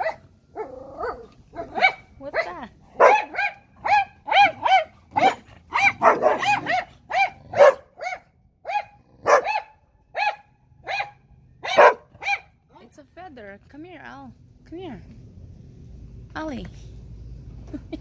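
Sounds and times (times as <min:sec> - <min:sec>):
dog barking high-pitched: 0:00.0 - 0:12.6.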